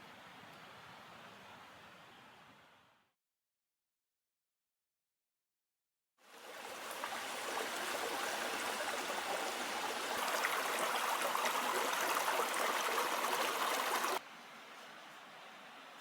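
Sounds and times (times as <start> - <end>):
faint outdoor ambience: 0.0 - 3.1, 6.2 - 16.0
river flowing: 6.3 - 14.2.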